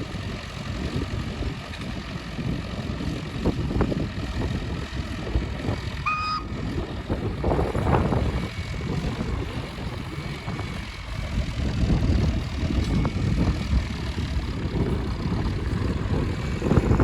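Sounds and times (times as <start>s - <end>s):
heavy engine rumbling: 0.0s - 17.0s
short high whistle: 6.1s - 6.5s.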